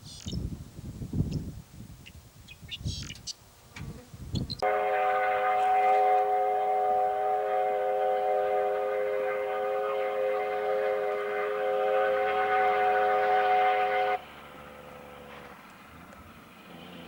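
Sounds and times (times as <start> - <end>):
low uneven rumbling: 3.9 - 17.0
steam locomotive whistle: 4.6 - 16.7.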